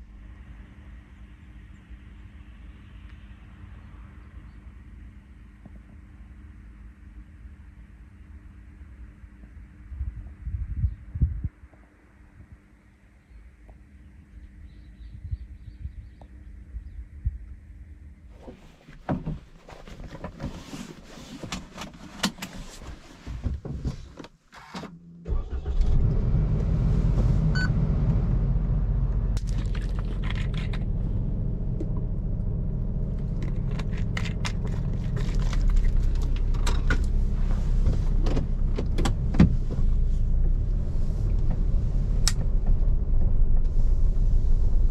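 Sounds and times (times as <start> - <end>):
car engine rumbling: 25.2 - 44.9.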